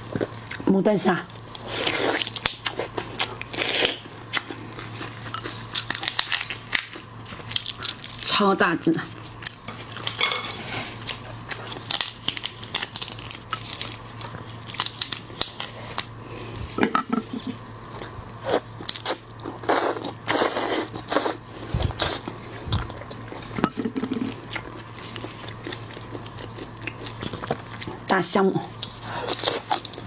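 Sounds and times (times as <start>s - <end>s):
wet chewing: 17.3s - 28.2s.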